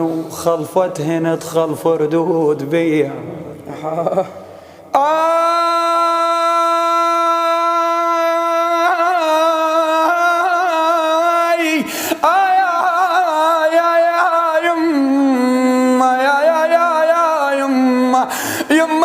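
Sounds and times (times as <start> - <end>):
man chanting without words: 5.0 - 19.0.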